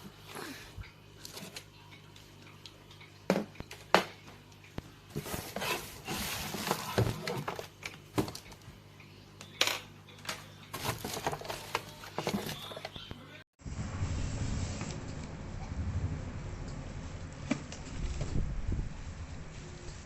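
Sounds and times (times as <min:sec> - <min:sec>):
rustling and clatter: 0:05.1 - 0:08.6, 0:10.7 - 0:12.9.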